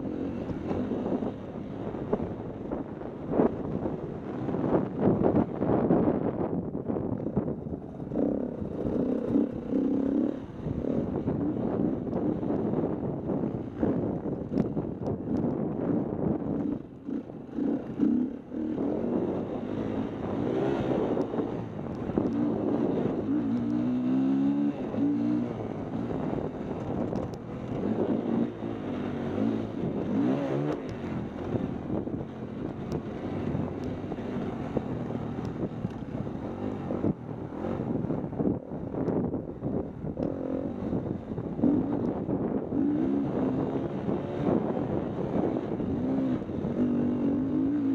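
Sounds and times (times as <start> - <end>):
wind noise on microphone: 0.0 - 47.9
dirt bike engine revving: 8.1 - 11.8, 16.6 - 26.3, 40.3 - 47.9.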